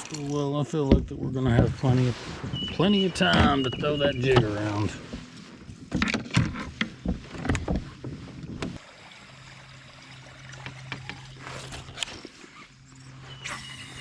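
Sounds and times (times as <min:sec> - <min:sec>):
knocks and clatters on kayak: 0:03.2 - 0:08.8.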